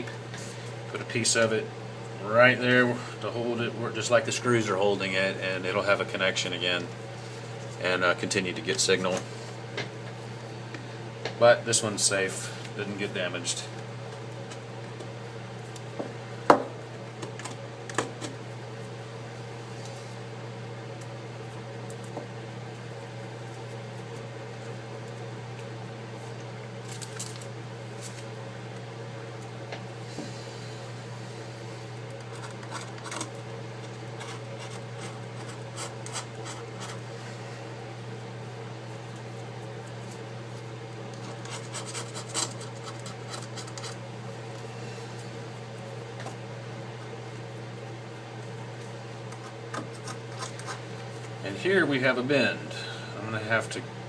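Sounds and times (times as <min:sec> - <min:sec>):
low electrical hum: 0:00.0 - 0:54.0
small tools scratching and clicking: 0:32.3 - 0:33.3, 0:34.2 - 0:37.0, 0:41.2 - 0:44.0, 0:49.3 - 0:50.8.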